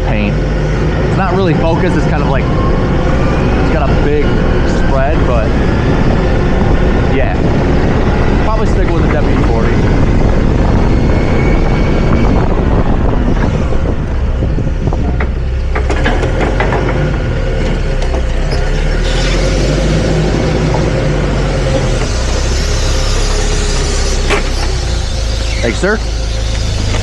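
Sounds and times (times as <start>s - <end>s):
forklift engine running: 0.0s - 27.0s
clicks and rattles: 15.0s - 18.4s.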